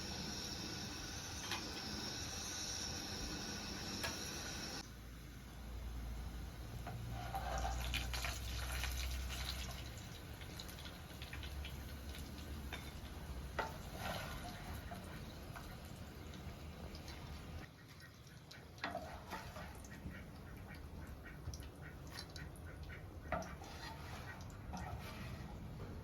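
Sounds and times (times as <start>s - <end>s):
water splashing and dripping: 14.4s - 25.0s.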